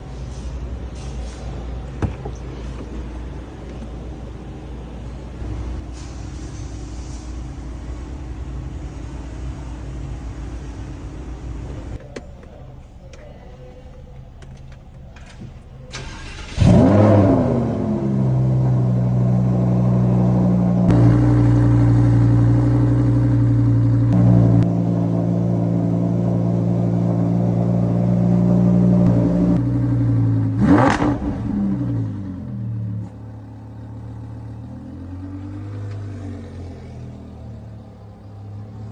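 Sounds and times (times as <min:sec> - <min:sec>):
car engine revving and idling: 0:15.9 - 0:38.9.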